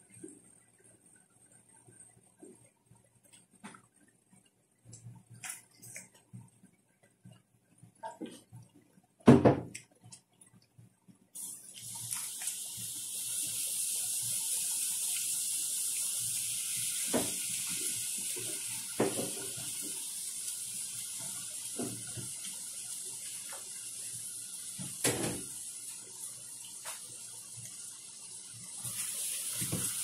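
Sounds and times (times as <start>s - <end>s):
steady high hiss: 11.4s - 30.0s.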